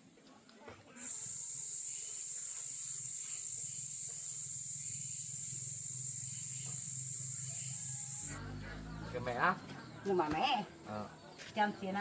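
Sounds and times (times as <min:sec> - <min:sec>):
insects chirring: 0:01.0 - 0:10.3.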